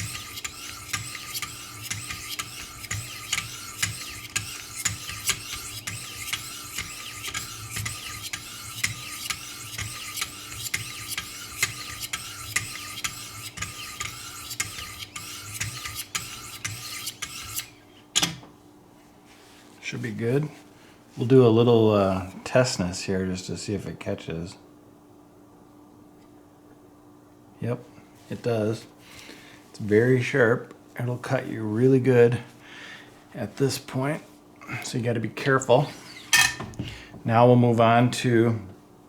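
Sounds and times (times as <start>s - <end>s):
sharpening stone rasping on knife: 0.0s - 17.7s.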